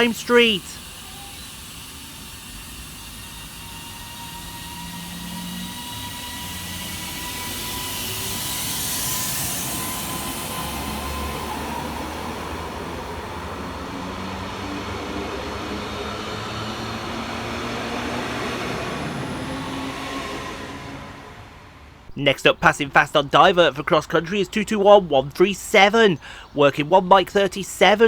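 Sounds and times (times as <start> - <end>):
train wheel and running noise: 0.0 - 22.1
train traction motors whining: 0.0 - 28.0.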